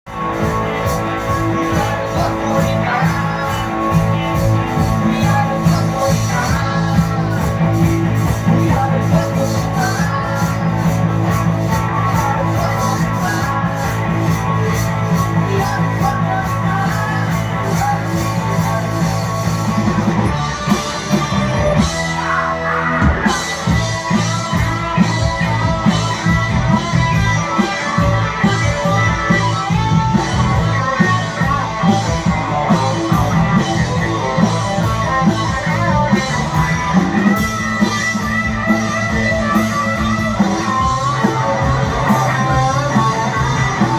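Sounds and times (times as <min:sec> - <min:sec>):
rock band playing live: 0:00.0 - 0:43.9.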